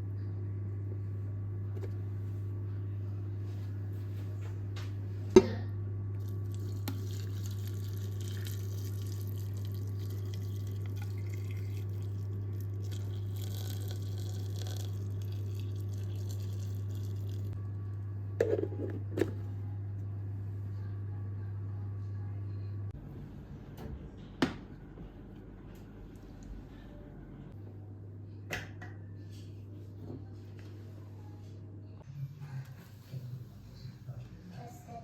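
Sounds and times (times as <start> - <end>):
constant low hum: 0.0 - 35.0
water running: 6.2 - 17.6.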